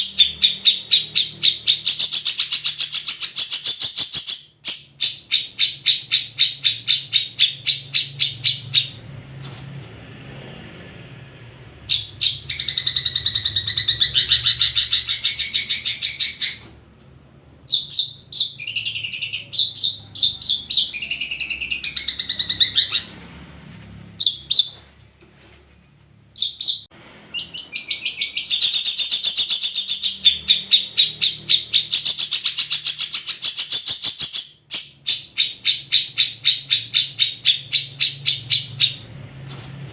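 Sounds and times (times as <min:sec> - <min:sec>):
shrike singing: 0:17.6 - 0:23.2.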